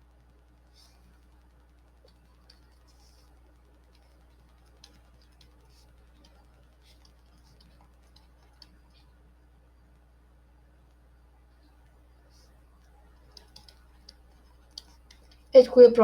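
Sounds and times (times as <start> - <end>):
steady low hum: 0.0 - 16.0
writing clicks and ticks: 2.0 - 9.1, 12.8 - 16.0.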